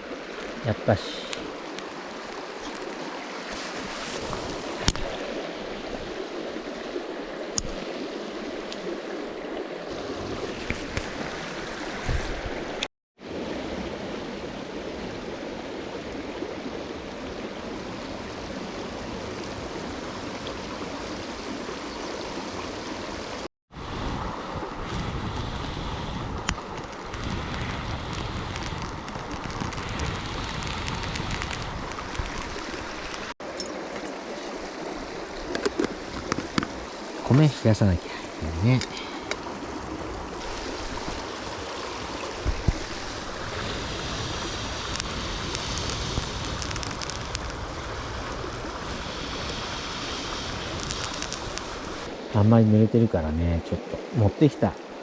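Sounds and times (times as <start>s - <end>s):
river water flowing: 0.0s - 55.0s
faint sharp clicks: 50.7s - 52.1s.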